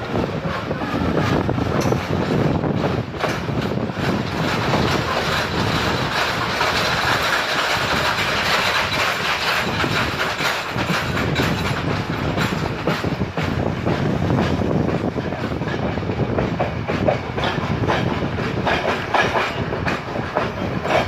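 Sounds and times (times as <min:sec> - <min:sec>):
passenger train running: 0:00.0 - 0:21.0
wheels clicking over rail joints: 0:00.0 - 0:21.0.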